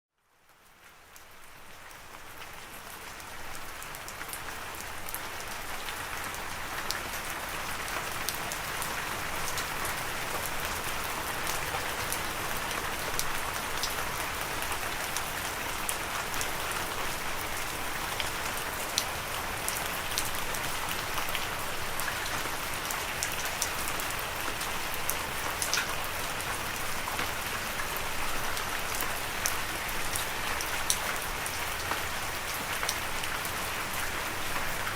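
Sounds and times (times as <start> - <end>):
rain falling on a surface: 0.1 - 34.9.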